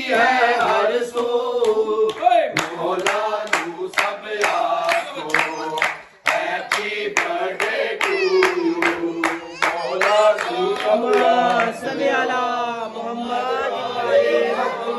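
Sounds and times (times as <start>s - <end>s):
voices singing or chanting: 0.0s - 14.9s
hand claps: 0.6s - 11.8s.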